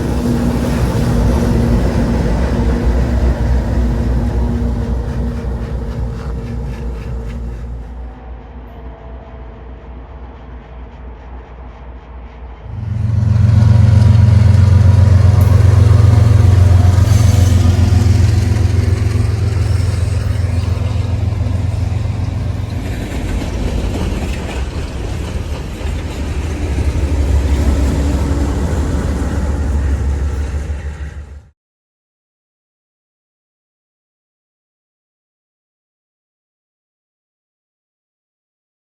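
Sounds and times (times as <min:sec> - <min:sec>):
diesel locomotive engine drone: 0:00.0 - 0:31.6
train passing: 0:00.0 - 0:31.6.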